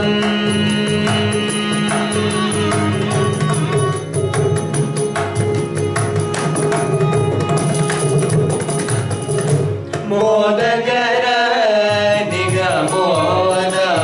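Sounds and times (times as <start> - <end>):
violin sustained notes: 0.0 - 9.9
hand drum rapid strokes: 0.0 - 10.4.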